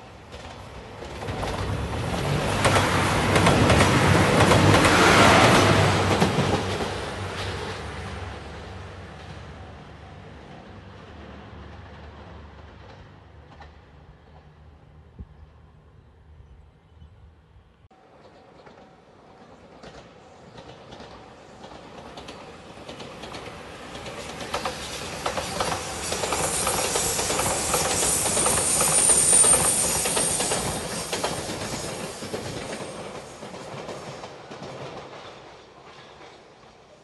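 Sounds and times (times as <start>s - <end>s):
train wheels clicking over rail joints: 0.3s - 7.9s, 18.2s - 36.6s
high hiss: 24.7s - 33.4s.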